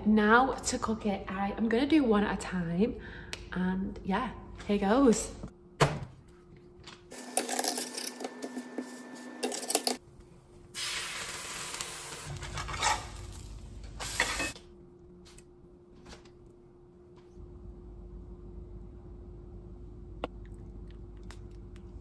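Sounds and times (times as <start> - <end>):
tacos sizzling in a hot pan: 10.8 - 14.6
faint steady hum: 13.4 - 22.0.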